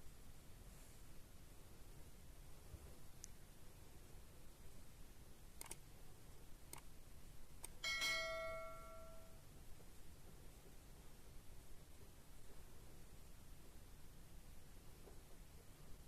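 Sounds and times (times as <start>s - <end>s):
faint clicks: 5.6s - 5.8s
metallic ring: 7.8s - 9.4s.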